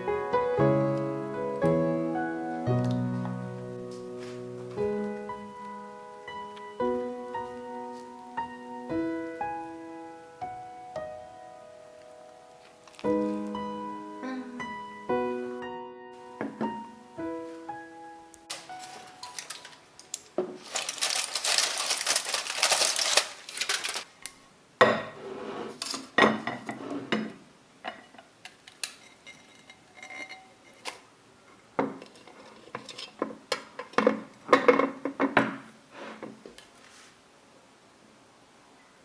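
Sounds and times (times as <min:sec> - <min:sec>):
steady hiss: 0:00.0 - 0:29.1
dishes and cutlery clinking: 0:18.5 - 0:19.8, 0:25.8 - 0:31.0, 0:31.8 - 0:35.4.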